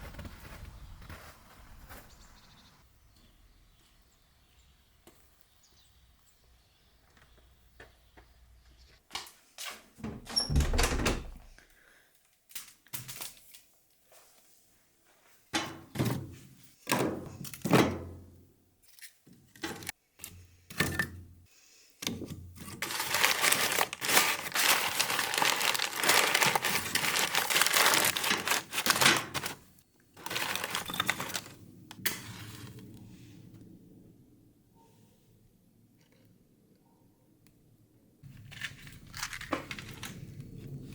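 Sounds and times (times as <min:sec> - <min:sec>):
rustling crackle: 0:22.6 - 0:33.0.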